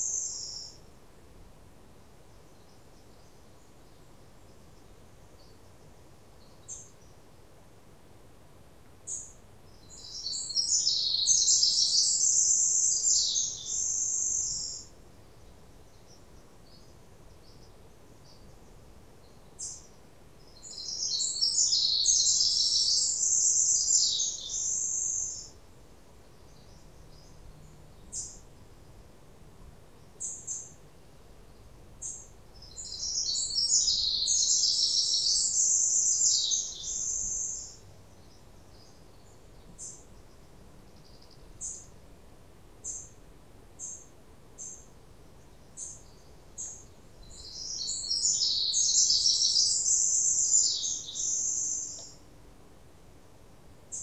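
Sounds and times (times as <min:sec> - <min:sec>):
songbird singing: 0:00.0 - 0:00.9, 0:02.2 - 0:07.5, 0:09.0 - 0:42.0, 0:42.8 - 0:43.2, 0:43.8 - 0:52.3
faint background hiss: 0:00.0 - 0:54.0
bird chirps: 0:09.1 - 0:14.9, 0:20.5 - 0:25.6, 0:32.0 - 0:40.0, 0:45.7 - 0:52.2.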